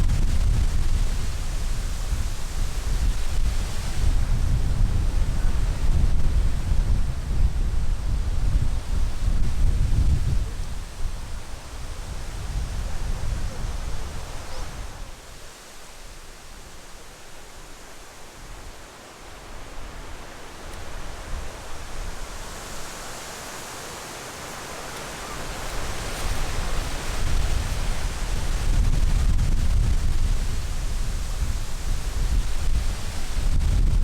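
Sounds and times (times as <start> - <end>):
strong wind rushing: 0.0 - 15.2, 25.3 - 34.0
wind buffeting microphone: 0.0 - 15.2, 24.8 - 34.0.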